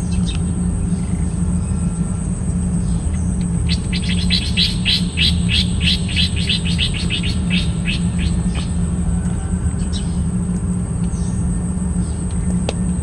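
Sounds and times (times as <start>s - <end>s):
steady low drone: 0.0s - 13.0s
bird chirping rapidly: 3.6s - 8.8s.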